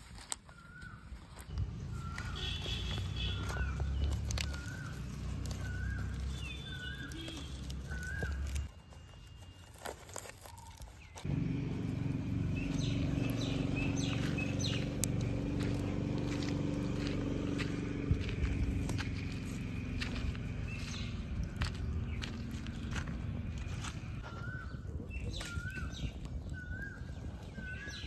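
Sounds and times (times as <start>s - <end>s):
bird chirping: 0.5s - 28.0s
steady low hum: 11.2s - 24.2s
low rumble: 11.3s - 24.2s.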